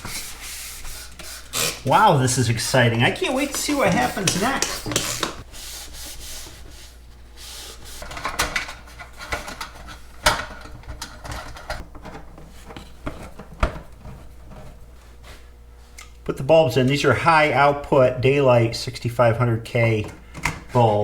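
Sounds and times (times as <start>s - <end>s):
hands rubbing and scraping: 0.0s - 8.2s.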